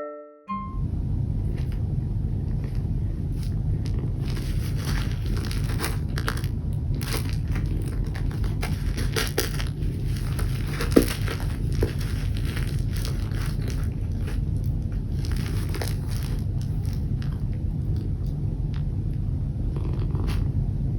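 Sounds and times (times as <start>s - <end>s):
steady low rumble: 0.5s - 20.9s
crinkly rustling: 2.5s - 18.2s.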